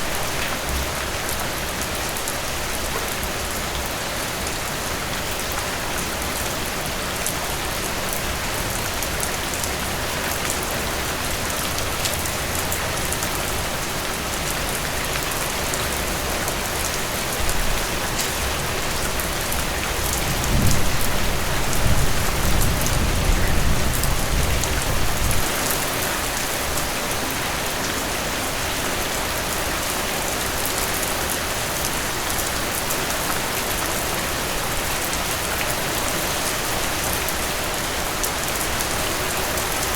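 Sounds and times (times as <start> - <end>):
heavy rain falling: 0.0 - 39.9
thunder rumbling: 20.2 - 25.6.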